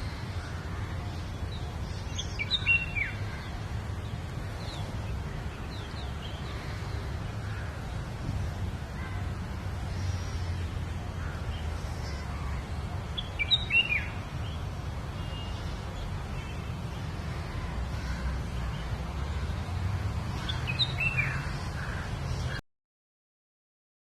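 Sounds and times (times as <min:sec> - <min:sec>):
bird chirping notes: 0:09.9 - 0:17.8.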